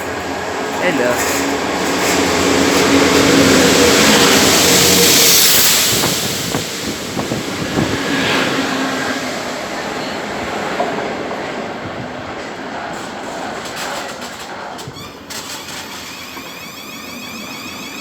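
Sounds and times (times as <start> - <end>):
train passing close by: 0.0 - 18.0
wheels clicking over rail joints: 12.4 - 18.0.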